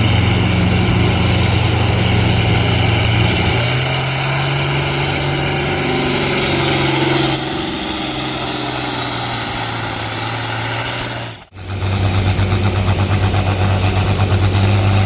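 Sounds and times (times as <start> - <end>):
high whine: 0.0 - 15.0
tractor engine running loud: 0.0 - 15.0.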